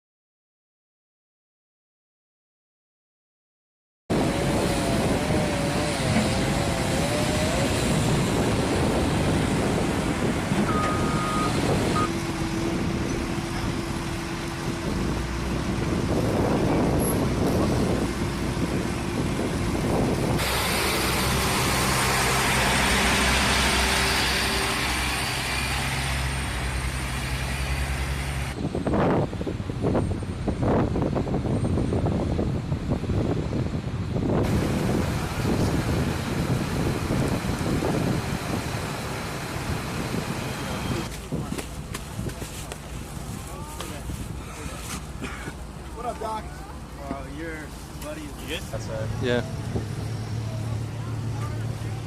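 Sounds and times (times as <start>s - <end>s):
truck engines running: 4.1s - 52.0s
short electronic beep: 10.7s - 12.1s.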